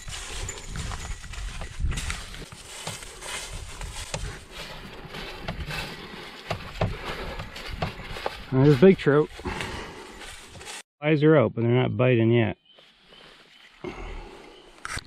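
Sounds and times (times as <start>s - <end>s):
footsteps on a trail: 0.0s - 10.8s
rustling: 0.0s - 10.8s.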